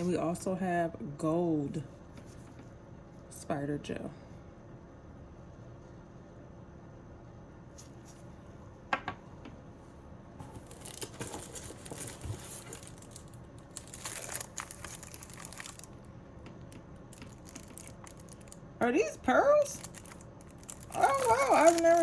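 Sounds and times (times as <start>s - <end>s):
packaging crinkling and tearing: 10.5s - 18.7s, 19.6s - 22.0s.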